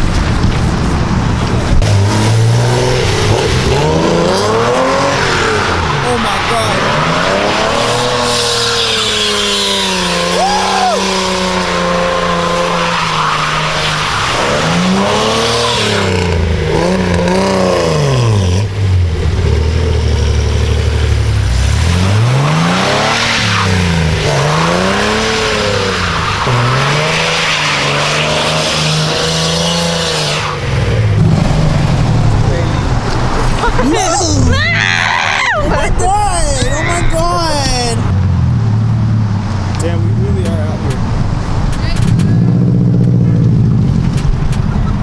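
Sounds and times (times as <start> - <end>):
car engine revving: 0.0 - 34.8, 35.7 - 45.0.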